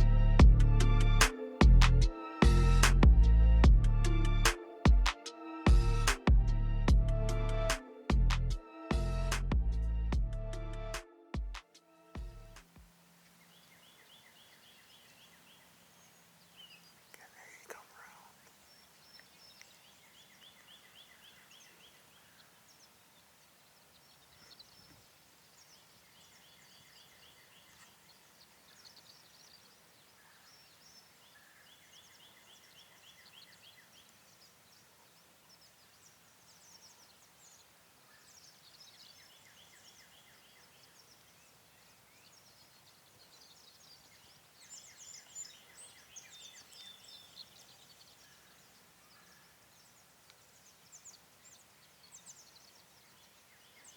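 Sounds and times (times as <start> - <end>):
small birds chirping: 12.7 - 53.9.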